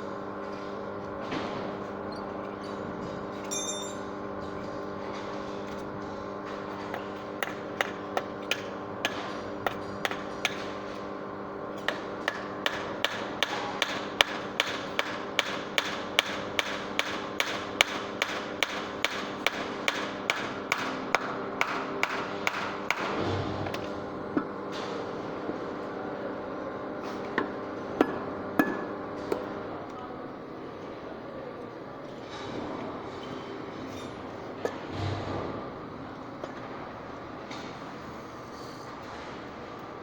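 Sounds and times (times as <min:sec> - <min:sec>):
hammer striking metal: 0:03.4 - 0:04.1.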